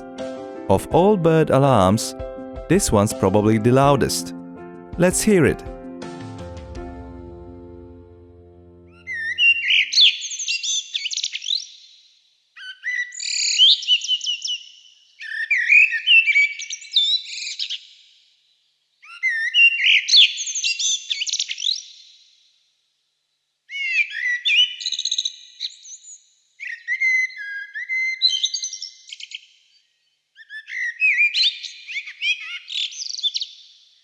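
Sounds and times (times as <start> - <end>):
blackbird singing: 30.4 - 33.6.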